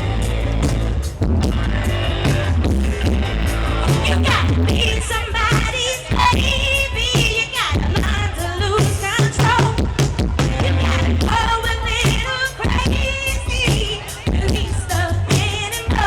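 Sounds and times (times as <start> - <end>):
heavy bass and drum beat: 0.0 - 16.0
woman singing: 3.8 - 16.0.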